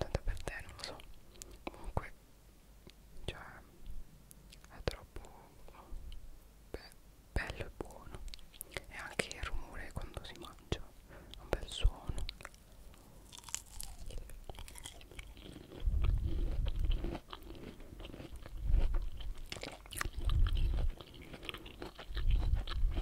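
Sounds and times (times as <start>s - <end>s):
wet chewing and mouth clicks: 7.9s - 9.4s, 11.3s - 23.0s.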